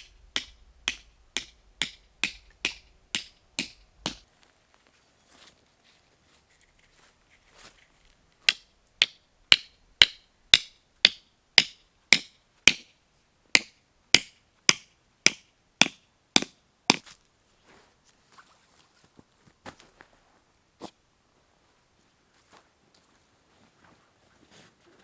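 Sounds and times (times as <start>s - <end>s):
hammer blows: 0.0s - 4.2s.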